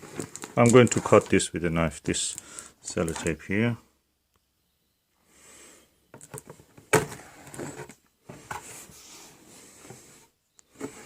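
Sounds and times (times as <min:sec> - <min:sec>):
cardboard scraping and rustling: 0:06.8 - 0:11.0.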